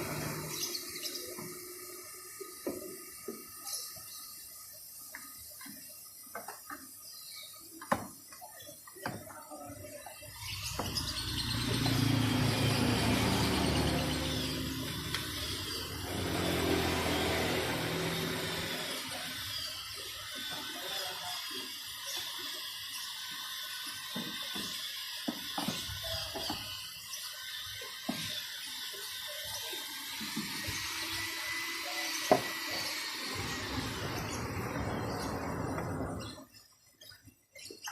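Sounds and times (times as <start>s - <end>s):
motor running: 0.0s - 6.0s, 10.3s - 36.6s
water spraying hiss: 0.0s - 36.6s.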